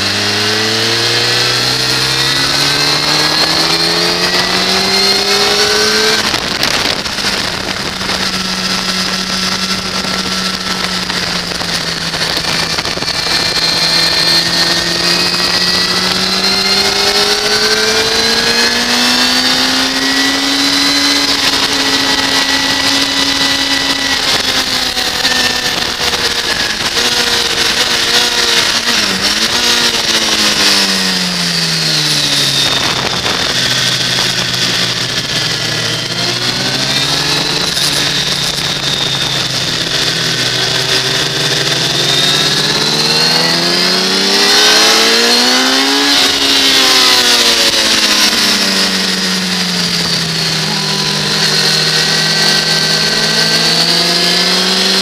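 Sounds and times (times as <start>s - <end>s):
motorcycle engine: 0.0s - 55.0s
wind rush: 0.0s - 55.0s.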